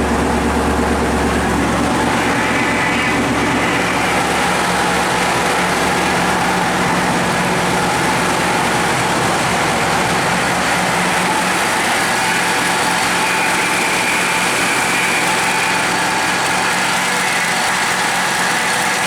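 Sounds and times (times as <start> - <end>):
car engine idling: 0.0 - 18.7.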